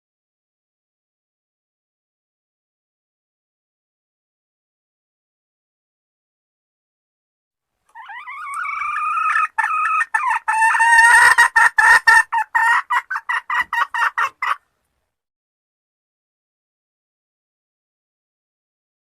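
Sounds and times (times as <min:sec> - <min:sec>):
hen calling and clucking: 0:07.9 - 0:14.7.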